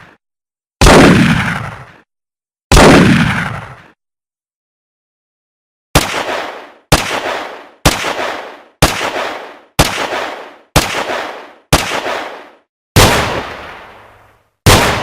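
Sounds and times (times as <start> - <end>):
gunshots with echoing tail: 0.8 - 2.0, 2.7 - 4.0, 6.0 - 15.0.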